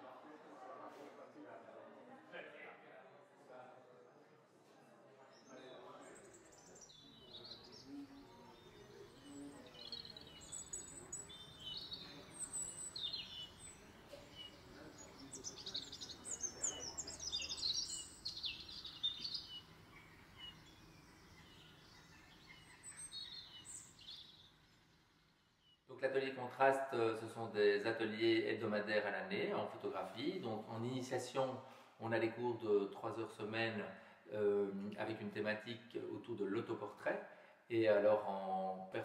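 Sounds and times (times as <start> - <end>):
birds chirping: 5.4 - 31.8.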